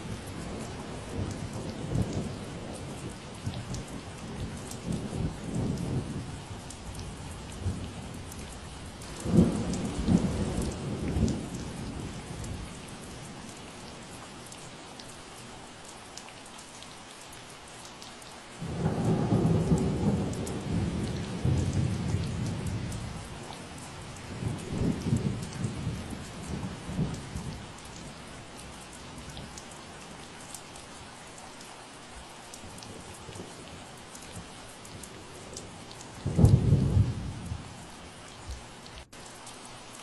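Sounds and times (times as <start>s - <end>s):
rain falling: 0.0s - 40.0s
thunder rumbling: 9.1s - 13.1s, 18.6s - 27.6s, 35.0s - 37.8s.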